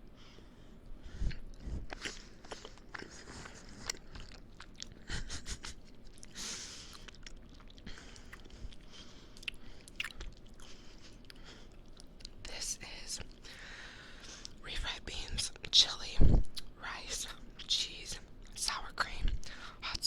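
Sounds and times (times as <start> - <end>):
person chewing food: 0.2 - 14.6.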